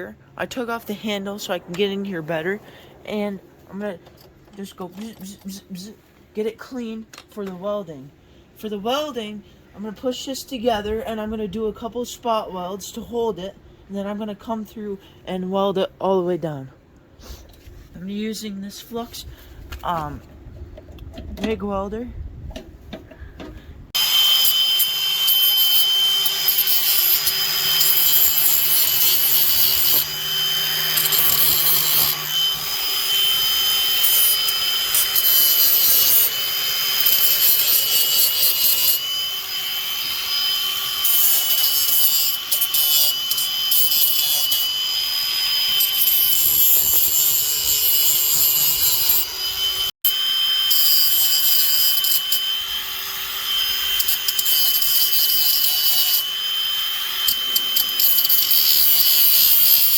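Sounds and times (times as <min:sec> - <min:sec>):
angle grinder grinding metal: 0:24.0 - 0:59.9.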